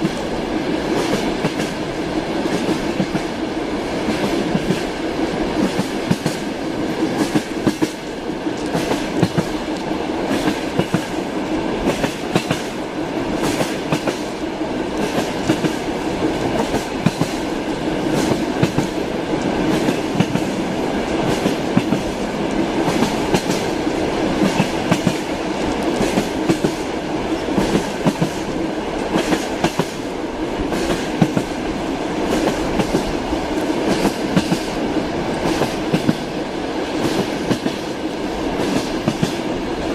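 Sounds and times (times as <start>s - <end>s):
train running rumble: 0.0s - 39.9s
train wheels clattering over rail joints: 5.6s - 31.6s, 32.2s - 39.5s.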